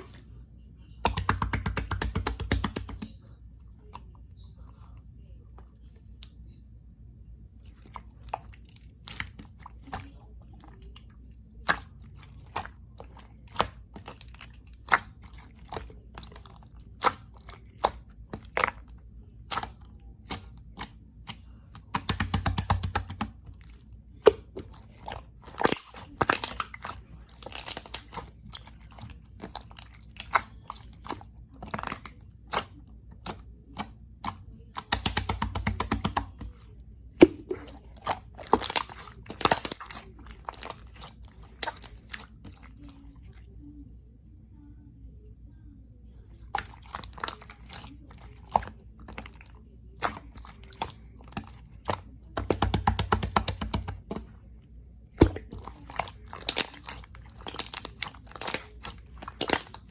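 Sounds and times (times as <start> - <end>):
rapid slime crackling: 1.1 - 3.2, 11.6 - 43.3, 46.4 - 59.9.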